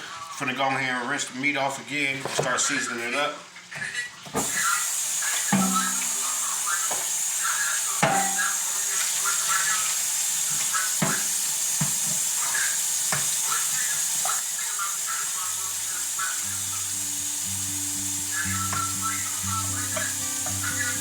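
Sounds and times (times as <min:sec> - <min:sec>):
kitchen tap running: 0:01.5 - 0:21.0
background music: 0:15.6 - 0:21.0.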